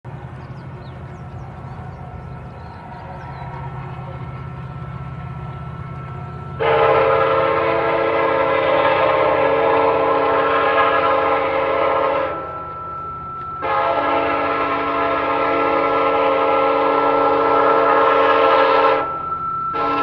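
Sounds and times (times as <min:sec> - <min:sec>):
train rumbling: 0:00.0 - 0:20.0
train horn blast: 0:05.1 - 0:20.0.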